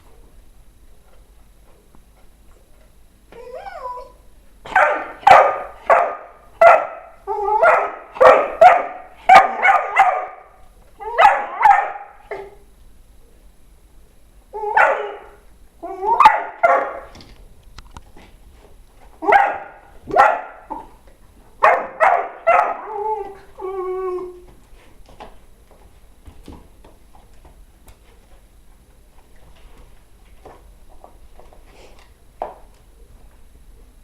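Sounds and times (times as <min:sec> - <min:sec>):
dog whining: 0:03.3 - 0:06.0, 0:07.3 - 0:10.4, 0:11.0 - 0:12.6, 0:14.5 - 0:17.1, 0:21.7 - 0:24.5
dog barking: 0:04.7 - 0:12.6, 0:14.7 - 0:15.4, 0:16.1 - 0:17.1, 0:19.2 - 0:20.9, 0:21.6 - 0:22.9.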